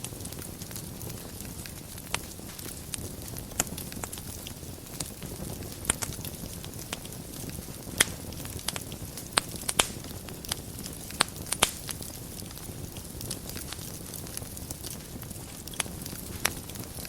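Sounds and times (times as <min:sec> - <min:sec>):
wood fire burning and crackling: 0:00.0 - 0:17.0.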